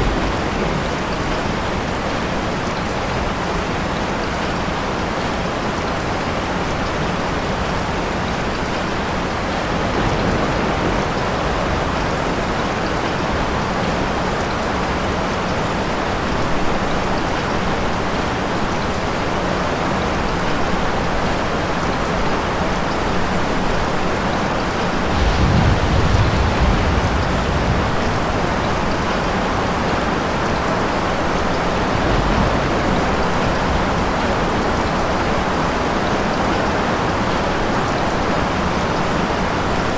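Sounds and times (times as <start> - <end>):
heavy rain: 0.0 - 39.9
distant thunder rumble: 24.7 - 35.4.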